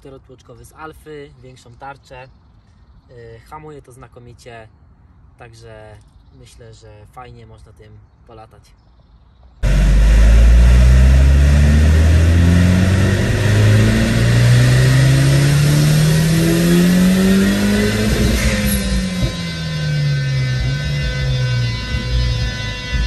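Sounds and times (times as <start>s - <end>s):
car engine revving at full throttle: 9.6s - 23.0s.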